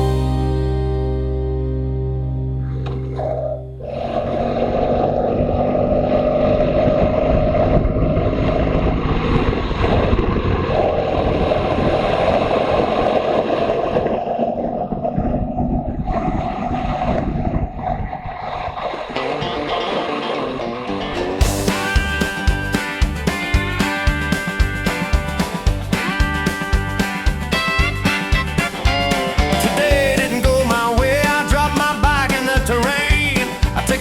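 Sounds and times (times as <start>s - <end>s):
wind noise on microphone: 3.8s - 19.6s
motorcycle engine running: 4.2s - 13.3s, 21.4s - 33.9s.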